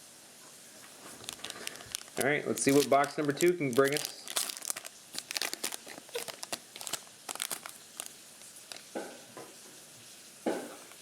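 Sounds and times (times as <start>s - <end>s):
plastic and foil packs crinkling: 0.9s - 9.1s.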